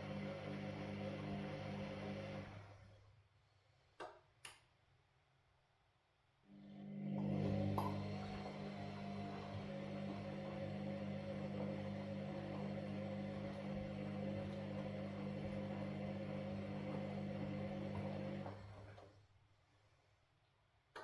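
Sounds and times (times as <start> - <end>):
washing machine motor hum: 0.0 - 3.0, 6.5 - 19.2.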